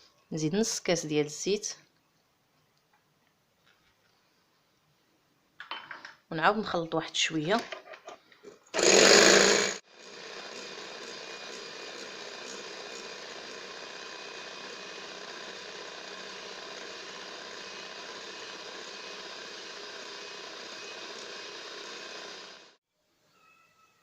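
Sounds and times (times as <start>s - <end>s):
electric hand mixer running: 8.8s - 22.8s.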